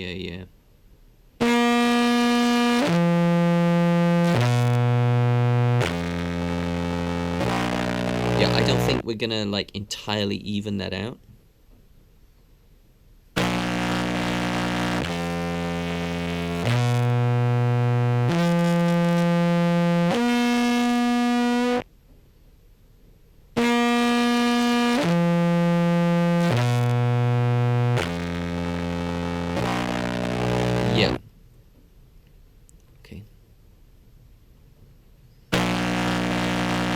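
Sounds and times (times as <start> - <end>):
buzzy amplified clarinet notes: 1.4 - 9.0, 13.4 - 21.8, 23.6 - 31.2, 35.6 - 36.9.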